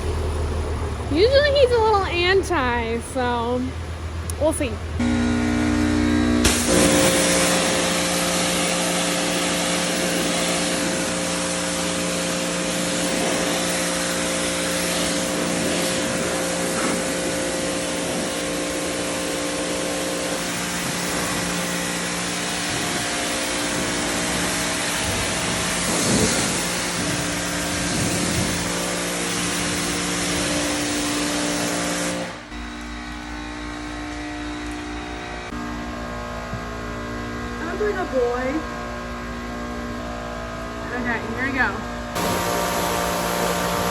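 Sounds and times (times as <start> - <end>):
pressure washer motor hum: 0.0 - 41.2, 42.0 - 43.9
spray hissing: 5.8 - 32.5, 42.2 - 43.9.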